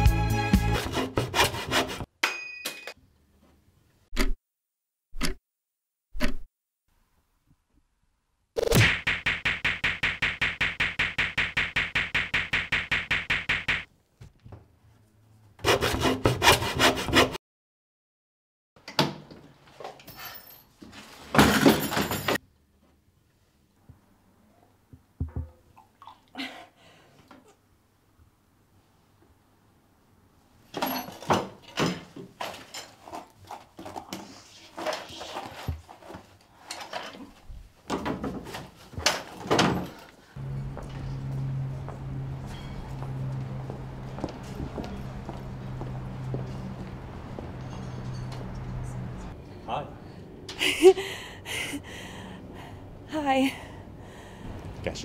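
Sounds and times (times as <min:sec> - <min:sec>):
hand saw cutting wood: 0:00.6 - 0:02.1, 0:15.6 - 0:17.4
objects knocking and clattering: 0:21.2 - 0:22.4.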